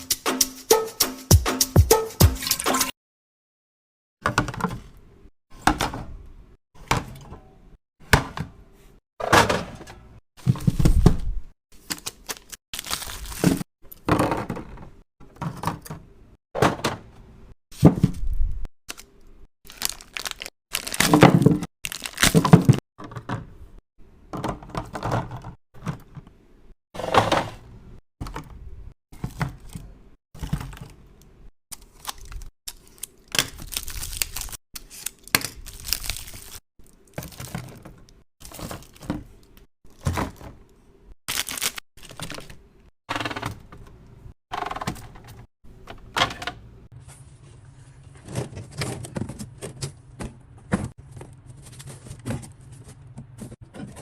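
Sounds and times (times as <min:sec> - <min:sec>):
packages crinkling: 0:11.8 - 0:13.6, 0:19.7 - 0:22.8, 0:41.3 - 0:42.5.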